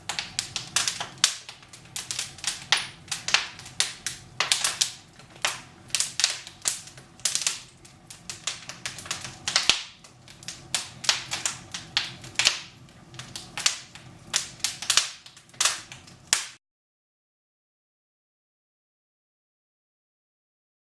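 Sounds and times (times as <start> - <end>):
firewood crackling: 0.0 - 16.6.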